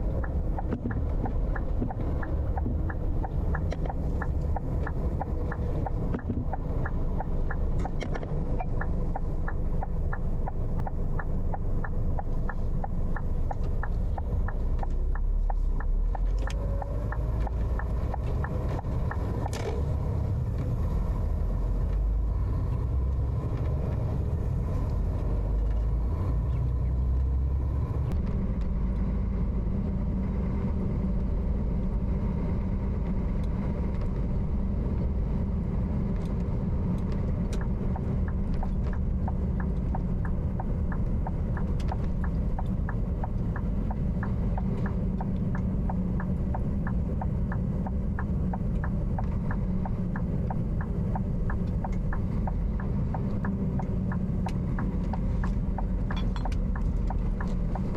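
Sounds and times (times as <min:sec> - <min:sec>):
light regular ticking: 0:00.0 - 0:22.0, 0:35.2 - 0:57.9
truck engine and road rumble: 0:00.0 - 0:57.9.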